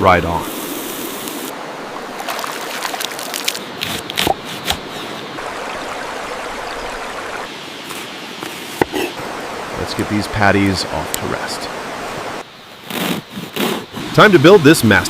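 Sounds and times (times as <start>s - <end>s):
sharp pops and crackles: 3.0s - 4.9s.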